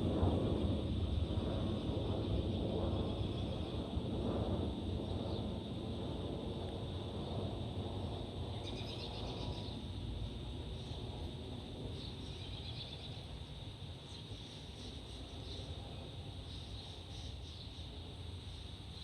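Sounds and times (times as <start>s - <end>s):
distant aircraft rumble: 0.0s - 19.0s.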